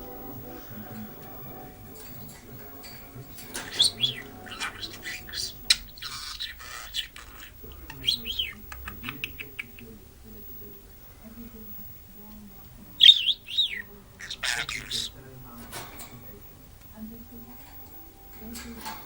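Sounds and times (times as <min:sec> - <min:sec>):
bird chirping and squawking: 0:00.0 - 0:10.0, 0:13.0 - 0:16.1.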